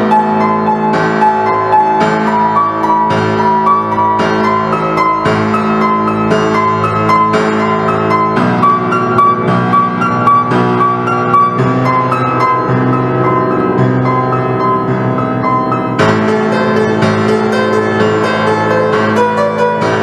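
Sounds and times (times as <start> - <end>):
piano-like keyboard notes: 0.0 - 20.0
sustained low chords: 2.7 - 17.7.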